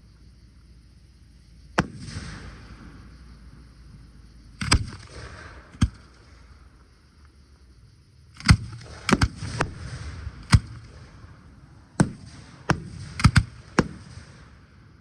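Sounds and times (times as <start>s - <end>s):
fireworks bursting: 8.4s - 14.7s.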